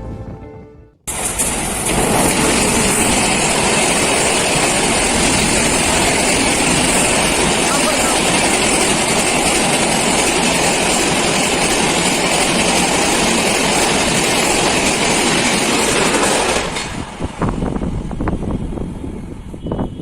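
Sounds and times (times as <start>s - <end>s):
express train passing: 0.0s - 20.0s.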